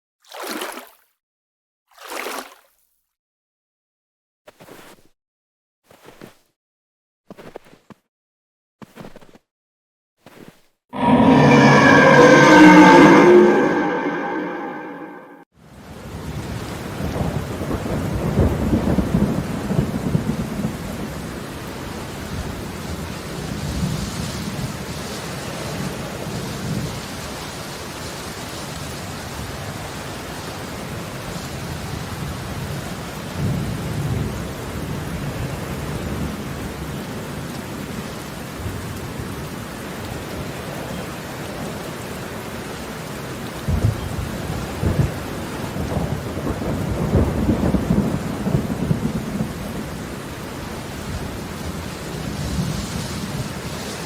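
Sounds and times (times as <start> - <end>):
steady rain: 15.7 - 54.0.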